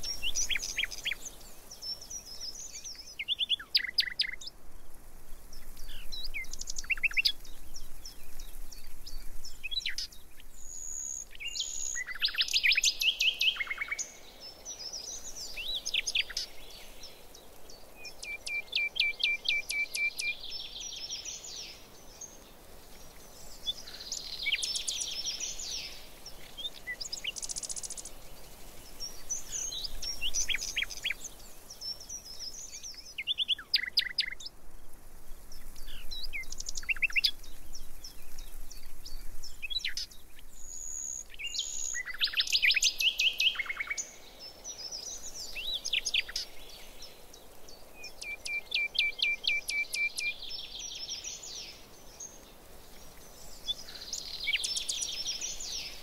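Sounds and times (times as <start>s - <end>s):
birds singing and chirping: 0.0s - 22.4s, 23.0s - 34.6s, 35.3s - 56.0s
faint steady background hiss: 0.0s - 56.0s.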